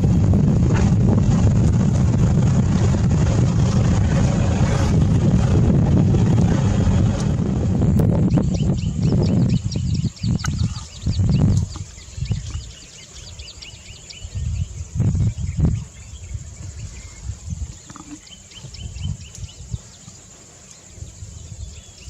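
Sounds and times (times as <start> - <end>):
uneven low rumbles: 0.0 - 12.8.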